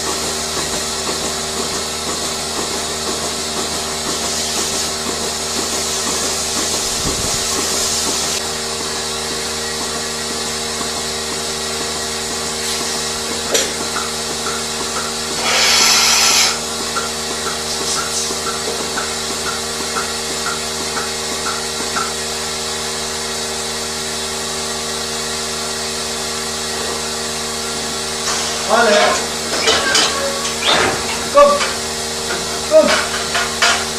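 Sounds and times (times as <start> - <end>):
air hissing: 15.2 - 16.7
machinery drone: 27.6 - 33.4.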